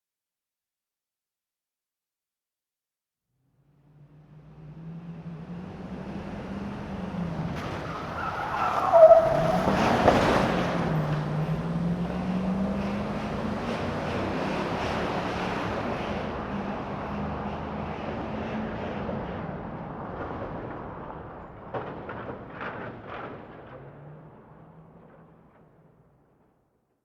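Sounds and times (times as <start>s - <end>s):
truck engine revving: 3.9s - 19.4s
tyre squeal: 7.6s - 10.2s.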